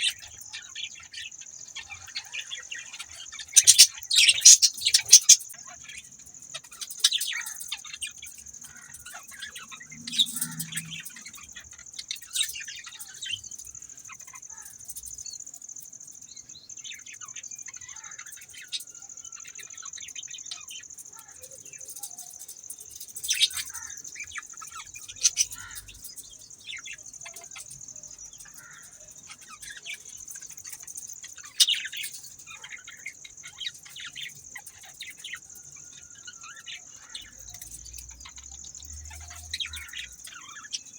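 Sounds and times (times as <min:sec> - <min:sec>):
budgerigars chirping and warbling: 0:00.0 - 0:06.0, 0:23.3 - 0:26.1.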